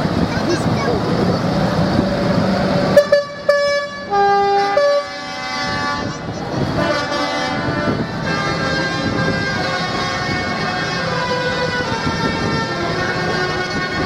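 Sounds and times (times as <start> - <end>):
engines running: 0.0 - 14.0
vehicle horns tooting: 2.9 - 14.0.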